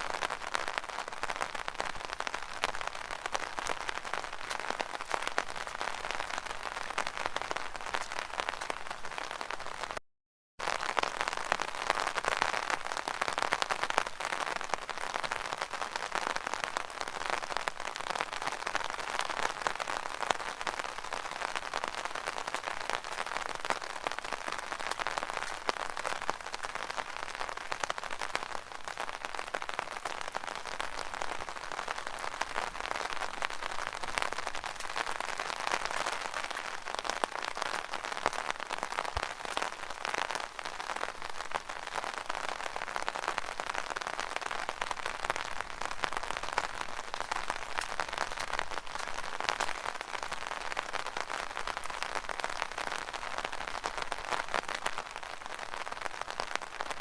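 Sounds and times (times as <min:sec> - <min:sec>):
rain on an umbrella: 0:00.0 - 0:10.0, 0:10.6 - 0:57.0.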